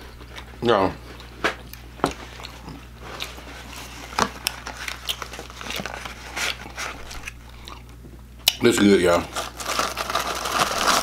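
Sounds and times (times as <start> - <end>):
chewing fried chicken: 1.0 - 8.6
cardboard box crackling: 9.3 - 11.0.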